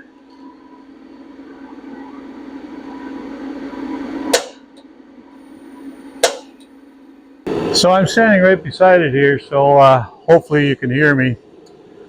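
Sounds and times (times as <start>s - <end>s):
heater fan humming: 7.1s - 12.0s.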